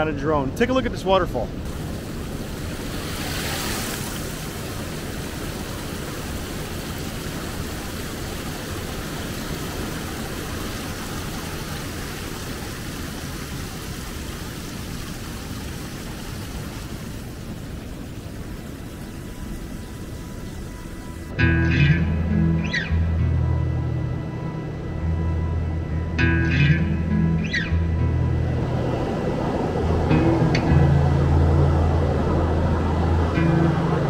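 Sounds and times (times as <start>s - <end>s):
waterfall rushing: 1.6s - 21.4s.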